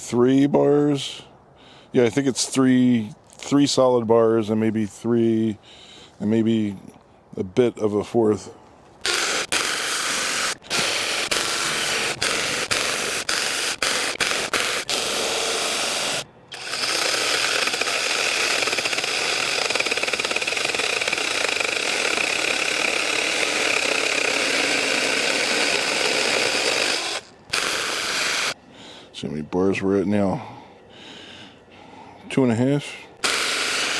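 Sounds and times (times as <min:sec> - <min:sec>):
chainsaw cutting logs: 0:09.0 - 0:28.6, 0:33.2 - 0:33.9.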